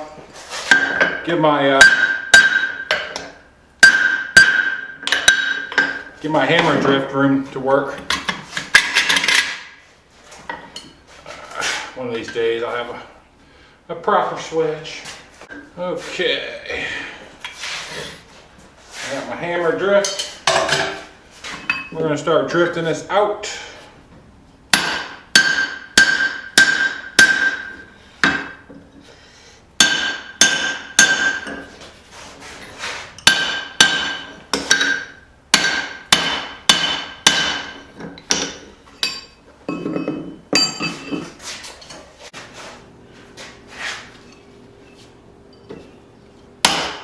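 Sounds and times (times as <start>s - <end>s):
low steady hum: 0.0s - 47.0s
hammer striking steel drift: 1.8s - 3.1s, 3.8s - 6.0s, 24.7s - 28.6s.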